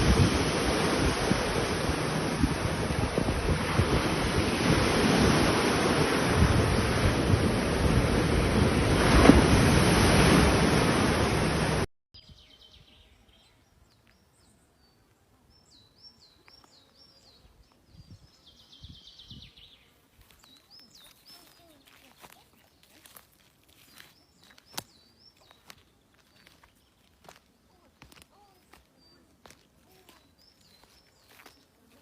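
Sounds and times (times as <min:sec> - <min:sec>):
sea surf: 0:00.0 - 0:11.9
wind: 0:00.0 - 0:32.0.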